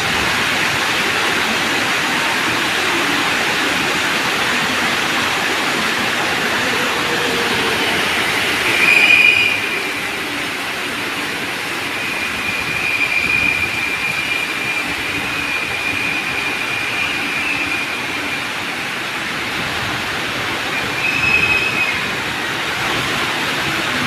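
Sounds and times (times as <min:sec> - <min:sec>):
electric train rolling on rails: 0:00.0 - 0:24.0
train wheels squealing: 0:06.3 - 0:10.5, 0:11.3 - 0:18.9, 0:20.7 - 0:22.3.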